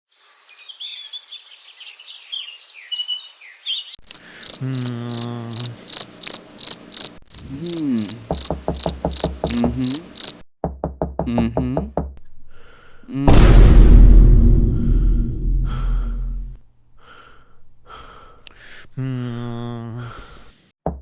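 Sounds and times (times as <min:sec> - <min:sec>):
birds twittering: 0:00.2 - 0:05.2
crickets chirping: 0:04.0 - 0:10.4
low repeated pulses: 0:13.1 - 0:16.6.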